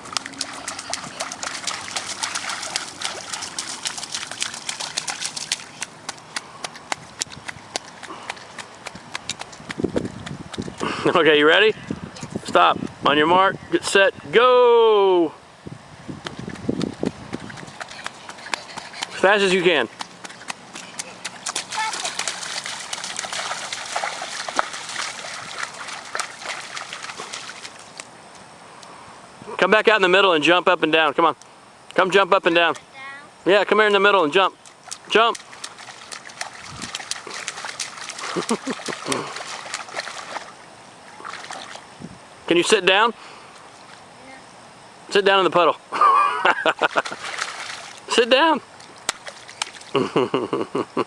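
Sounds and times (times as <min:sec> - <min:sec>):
water pattering and splashing: 0:00.0 - 0:12.5, 0:16.2 - 0:28.5, 0:33.7 - 0:44.1, 0:46.0 - 0:50.4.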